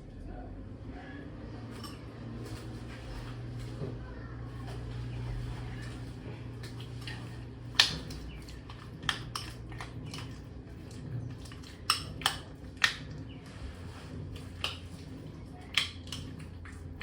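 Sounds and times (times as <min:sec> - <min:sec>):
low steady hum: 0:00.0 - 0:17.0
cutlery clinking against a bowl: 0:01.6 - 0:03.7, 0:06.6 - 0:13.2, 0:14.4 - 0:16.8.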